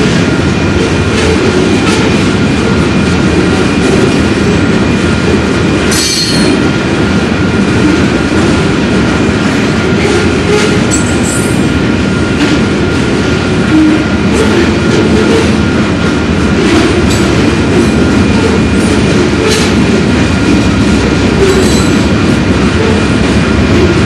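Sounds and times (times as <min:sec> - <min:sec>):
train rolling on rails: 0:00.0 - 0:24.0
high wheel squeal: 0:21.4 - 0:22.0.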